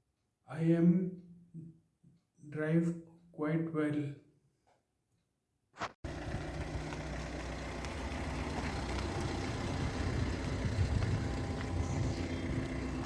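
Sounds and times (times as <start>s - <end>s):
car engine running: 6.0s - 13.0s.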